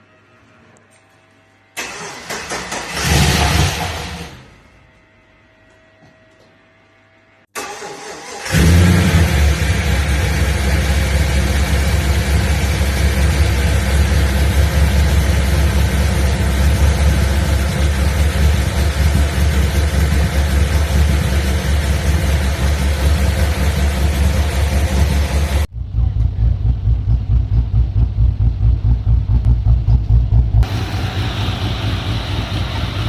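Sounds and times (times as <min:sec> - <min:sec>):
engine cranking and starting: 0:01.8 - 0:04.4, 0:07.6 - 0:10.0
engine running loudly: 0:08.6 - 0:27.6, 0:30.6 - 0:33.0.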